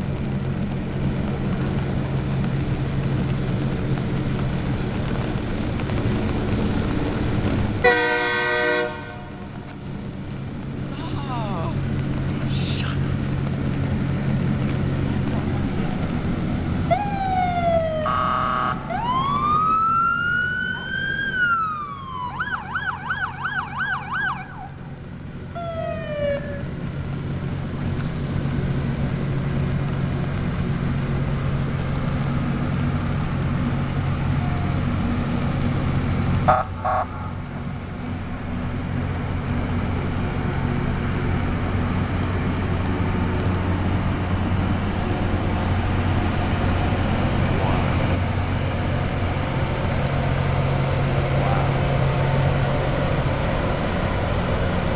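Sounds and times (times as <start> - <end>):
low engine hum: 0.0 - 54.9
emergency siren wailing and yelping: 16.8 - 24.8, 25.5 - 26.8, 36.5 - 37.4.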